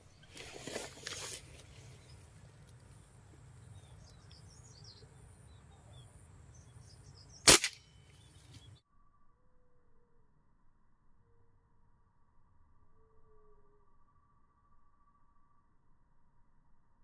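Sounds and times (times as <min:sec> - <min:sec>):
small birds chirping: 0:00.0 - 0:08.8
air rifle shot: 0:07.4 - 0:07.9.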